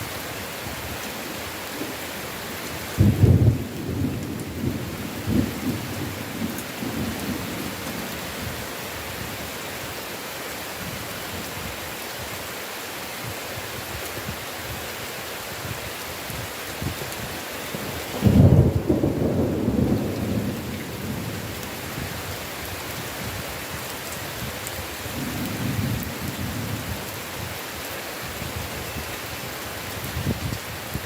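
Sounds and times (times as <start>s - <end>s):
heavy rain falling: 0.0s - 31.0s
thunder clap and rumble: 3.0s - 8.1s, 18.2s - 22.1s, 25.1s - 27.1s.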